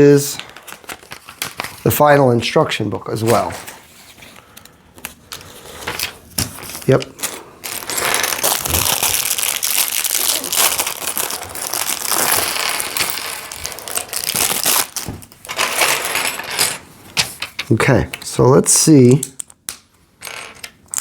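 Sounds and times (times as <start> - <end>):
plastic bag crinkling: 5.9 - 16.2.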